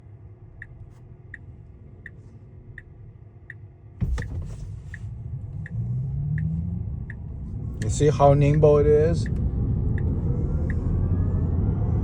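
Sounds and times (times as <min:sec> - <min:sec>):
low cabin rumble: 0:00.0 - 0:05.6
turn signal ticking: 0:00.5 - 0:10.9.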